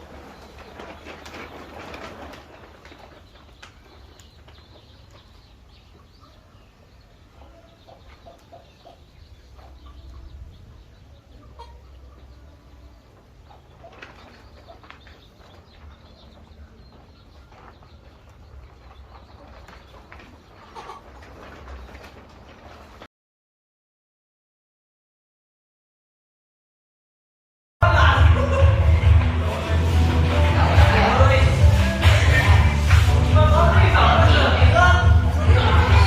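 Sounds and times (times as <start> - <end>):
wings flapping: 0.0 - 5.2, 13.5 - 23.1
poultry calls: 0.0 - 23.1
poultry moving about: 0.0 - 23.1.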